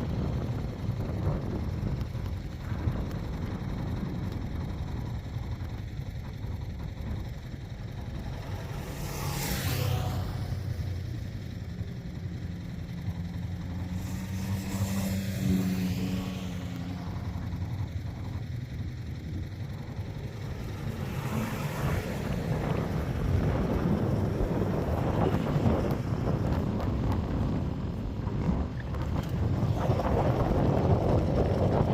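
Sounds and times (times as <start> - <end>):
engines rumbling: 0.0 - 31.9
vehicles passing close by: 0.0 - 31.9.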